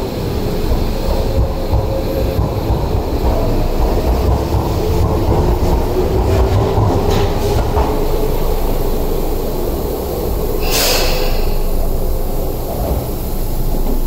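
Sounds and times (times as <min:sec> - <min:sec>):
train running rumble: 0:00.0 - 0:14.0
sharp hiss of air: 0:10.6 - 0:12.0.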